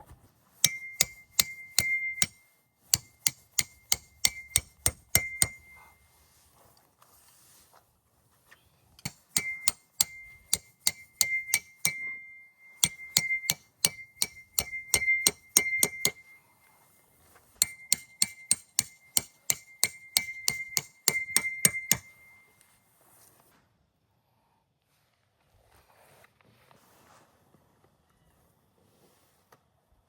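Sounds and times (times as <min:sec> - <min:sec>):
hammer blows on metal: 0:00.6 - 0:02.4, 0:03.0 - 0:06.0, 0:09.0 - 0:16.4, 0:17.6 - 0:22.5.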